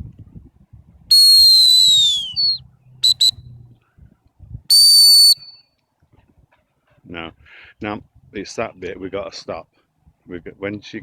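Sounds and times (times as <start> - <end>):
dog training whistle blasts: 1.1 - 3.4, 4.7 - 5.7.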